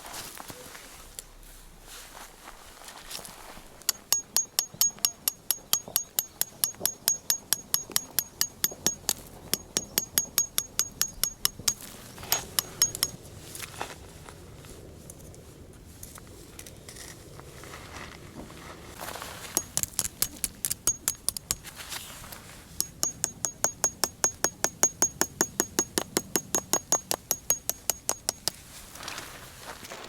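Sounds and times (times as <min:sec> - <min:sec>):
hammer blows on metal: 0:03.9 - 0:13.2, 0:19.5 - 0:21.7, 0:22.8 - 0:28.6.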